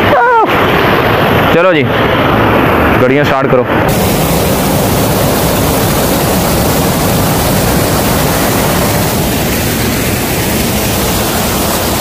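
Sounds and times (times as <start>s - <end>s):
water rushing over rocks: 3.9s - 12.0s.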